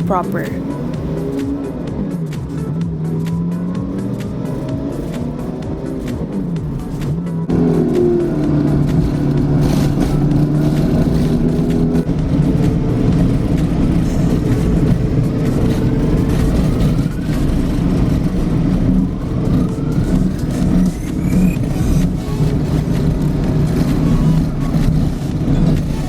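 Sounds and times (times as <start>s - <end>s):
bus engine: 0.0s - 26.0s
rising engine whine: 0.0s - 26.0s
road noise: 0.0s - 26.0s.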